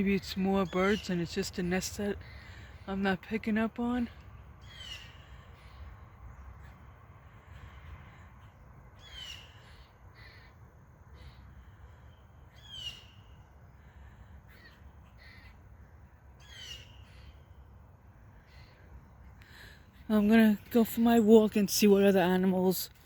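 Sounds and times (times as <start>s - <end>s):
bird calling: 4.6s - 22.4s.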